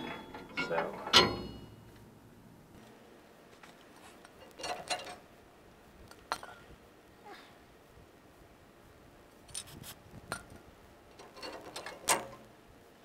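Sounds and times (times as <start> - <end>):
short metal rattle: 0.0 - 1.9.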